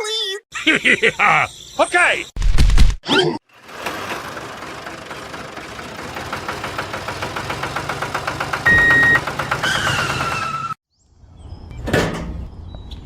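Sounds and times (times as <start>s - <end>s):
tractor engine knocking: 3.5s - 10.8s
short beep: 8.7s - 9.2s.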